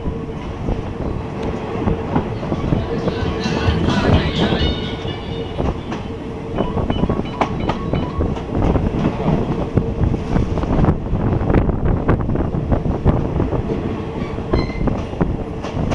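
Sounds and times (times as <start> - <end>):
train rumble: 0.0 - 15.9.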